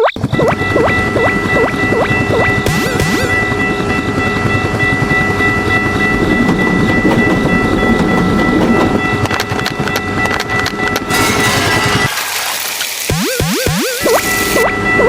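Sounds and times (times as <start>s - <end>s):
railway crossing bell ringing: 0.2s - 12.0s, 14.2s - 15.0s
train wheels clattering on rails: 0.2s - 12.2s.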